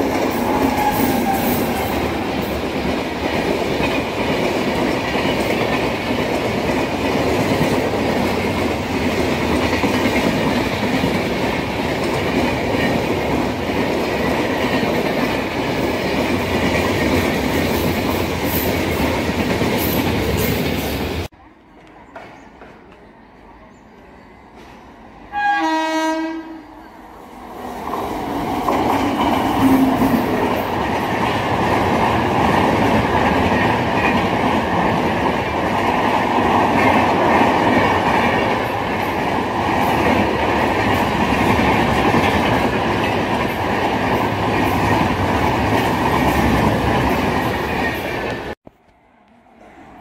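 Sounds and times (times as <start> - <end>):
train rushing on rails: 0.0 - 50.0
train horn blast: 0.4 - 2.2, 25.3 - 27.0.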